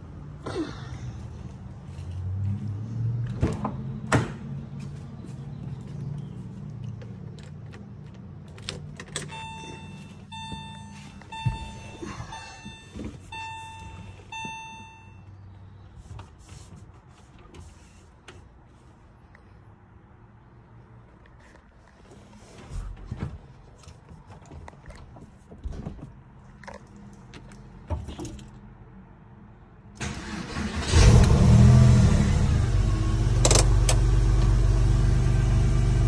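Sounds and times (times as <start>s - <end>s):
car warning chime beeping: 9.2s - 15.4s.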